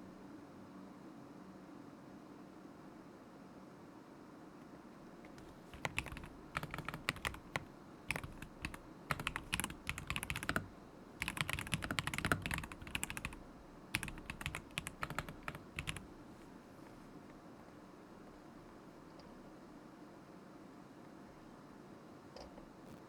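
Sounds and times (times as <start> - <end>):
mechanical keyboard key clacks: 11.2 - 13.4.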